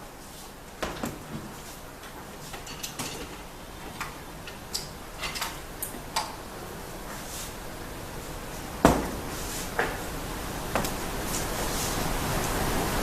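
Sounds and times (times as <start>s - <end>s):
loud knock: 8.9s - 9.2s.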